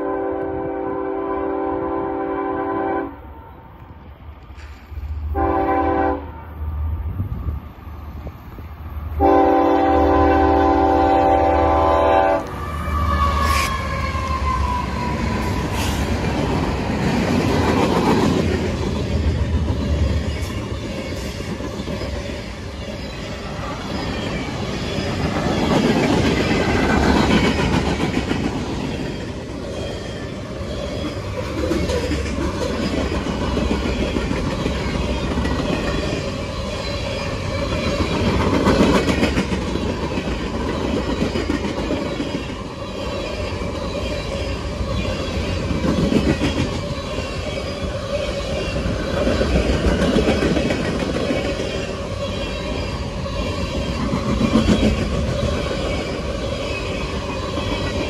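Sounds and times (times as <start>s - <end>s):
freight train wheels clattering: 23.8s - 58.0s.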